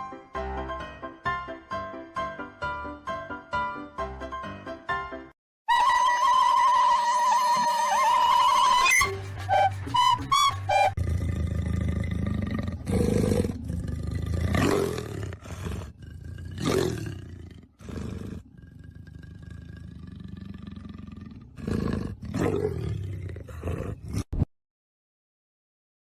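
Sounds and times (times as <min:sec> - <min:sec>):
animal calling loudly: 0:06.9 - 0:11.0.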